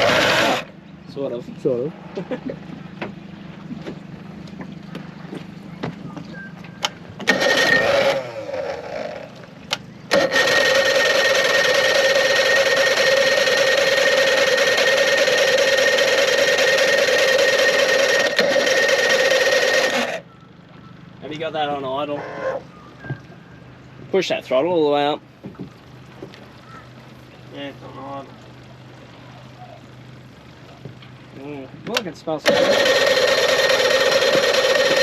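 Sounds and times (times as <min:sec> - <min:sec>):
outboard motor burst: 0:00.0 - 0:35.0
loud steady buzzing tone: 0:06.0 - 0:24.0, 0:32.5 - 0:35.0.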